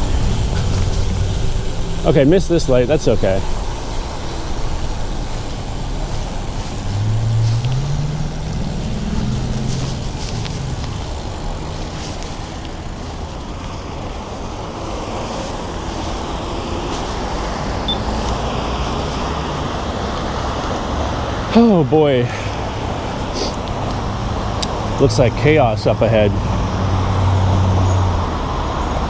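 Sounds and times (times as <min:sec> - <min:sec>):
passing cars rumble: 0:00.0 - 0:29.0
vehicle engine accelerating: 0:00.0 - 0:29.0.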